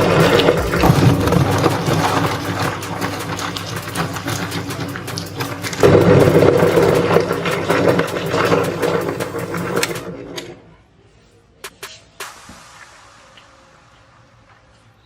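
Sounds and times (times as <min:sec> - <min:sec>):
meat grinder motor humming: 0:00.0 - 0:10.1.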